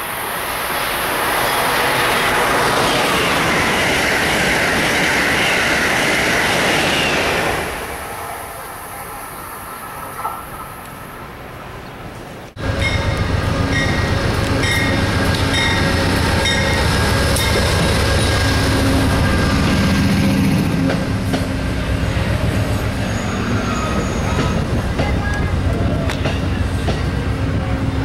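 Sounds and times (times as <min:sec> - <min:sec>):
wheel-and-rail rumble: 0:10.0 - 0:28.0
diesel locomotive engine running: 0:12.1 - 0:28.0
high-pitched wheel squeal: 0:22.8 - 0:24.7.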